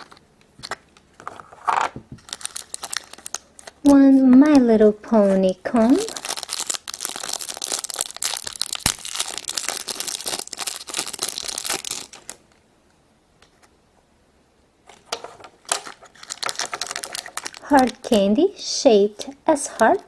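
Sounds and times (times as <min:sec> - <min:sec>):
plastic packaging crinkling: 0:00.0 - 0:12.6, 0:14.9 - 0:18.3.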